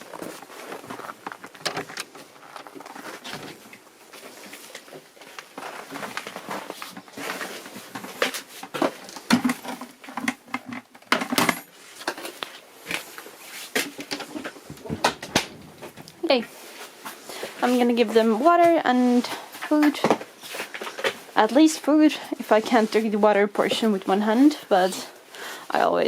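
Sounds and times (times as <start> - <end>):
objects clicking and clattering: 0.0 - 16.2.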